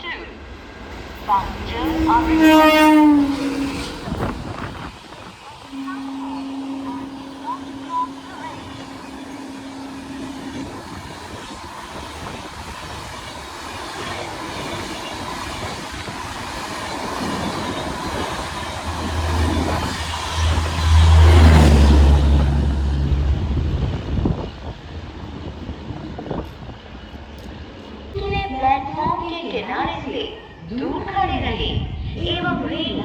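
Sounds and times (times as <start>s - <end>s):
train passing on rails: 0.0s - 33.0s.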